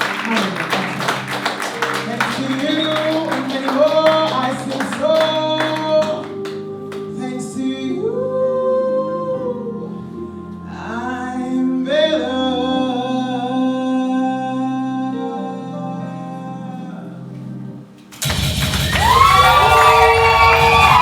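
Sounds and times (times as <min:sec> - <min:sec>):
instrumental accompaniment: 0:00.0 - 0:07.3
sharp percussive strokes: 0:18.2 - 0:21.0.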